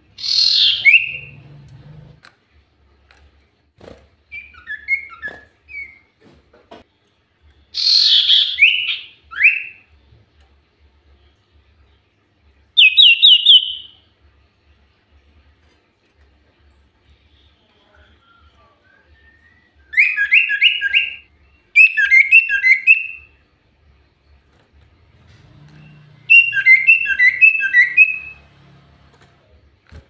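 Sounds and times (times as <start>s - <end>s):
bird chirps: 0.2s - 1.4s, 7.8s - 9.8s, 25.4s - 28.4s.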